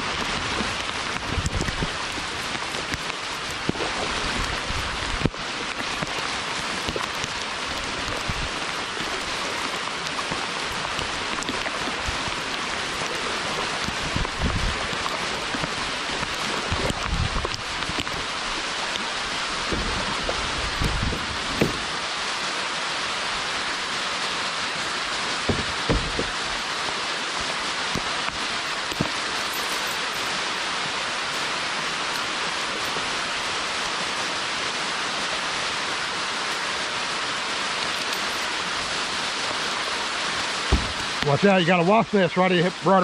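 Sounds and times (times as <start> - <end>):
hard rain falling: 0.0 - 43.0
low thumps: 19.6 - 21.9, 25.4 - 26.5, 40.7 - 41.2.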